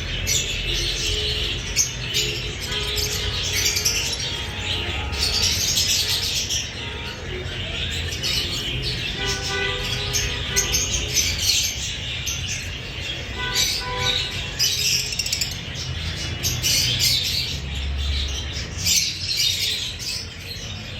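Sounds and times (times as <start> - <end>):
lovebird chattering with chirps: 14.4 - 15.7.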